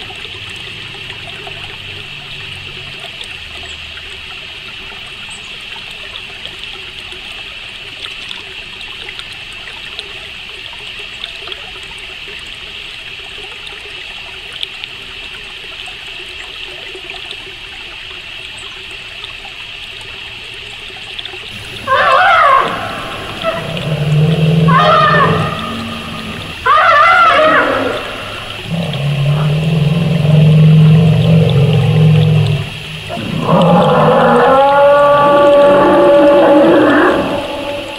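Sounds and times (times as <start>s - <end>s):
high steady hiss: 21.4s - 37.9s
faint ticks: 27.8s - 34.2s.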